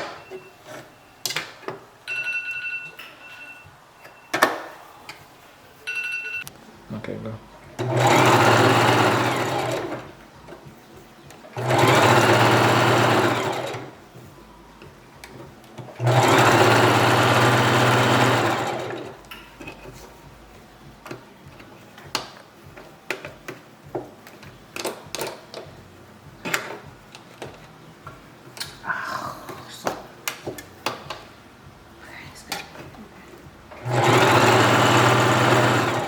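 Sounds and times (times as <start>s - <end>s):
electric sewing machine stitching: 7.8s - 10.1s, 11.6s - 14.0s, 15.9s - 19.2s, 33.7s - 36.0s.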